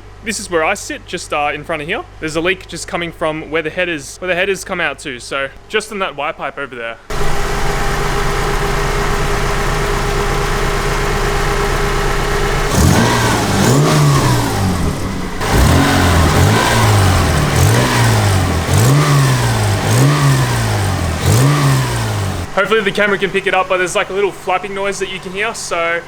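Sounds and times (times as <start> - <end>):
car engine idling and revving: 7.1 - 26.0
exhaust leak flapping: 7.1 - 26.0.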